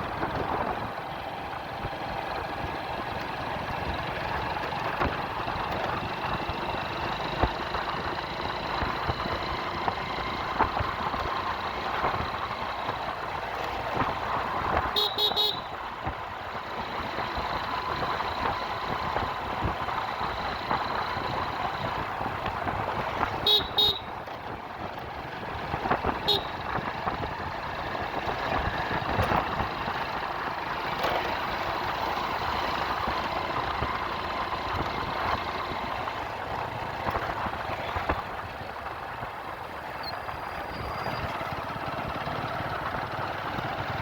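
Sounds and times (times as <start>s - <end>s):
road traffic noise: 0.0s - 44.0s
vehicle horn short beeps: 14.9s - 15.8s, 23.4s - 24.1s, 26.2s - 26.6s.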